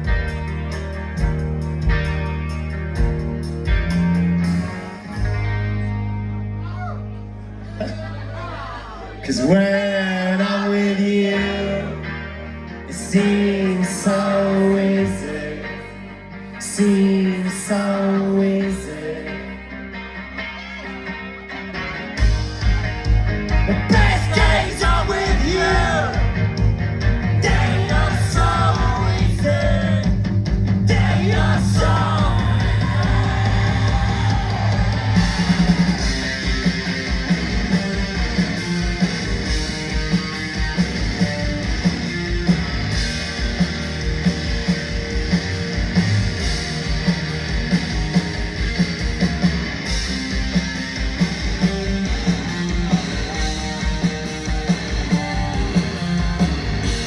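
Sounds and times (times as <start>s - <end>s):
drums: 0.0s - 7.1s, 20.8s - 57.0s
electric guitar: 0.0s - 8.3s, 9.1s - 57.0s
bass guitar: 0.0s - 57.0s.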